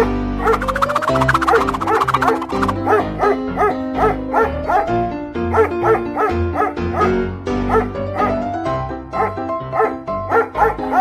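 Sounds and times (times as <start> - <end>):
cartoon music with bass line: 0.5 - 2.9.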